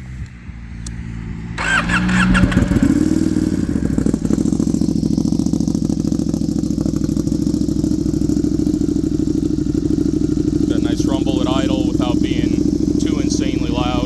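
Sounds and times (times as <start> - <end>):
motorcycle engine idling: 0.7 - 14.0
motorcycle starter cranking: 1.6 - 4.9.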